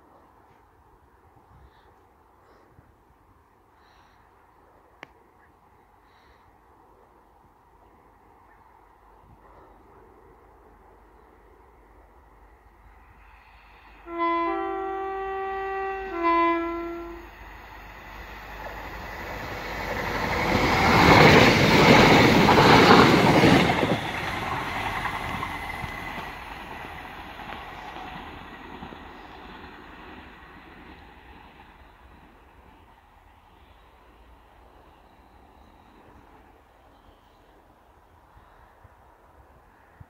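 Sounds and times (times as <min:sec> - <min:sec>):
train passing at speed: 0:06.1 - 0:40.0
train horn: 0:13.9 - 0:17.4.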